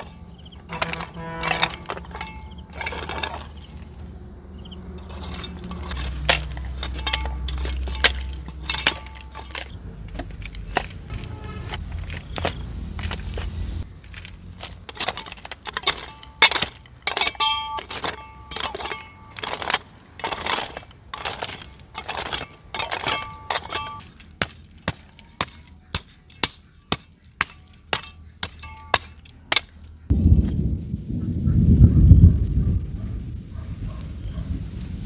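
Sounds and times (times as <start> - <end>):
sharp knocks and cracks: 0.0 - 4.1, 4.9 - 30.6
low rumbling noise: 30.1 - 35.0.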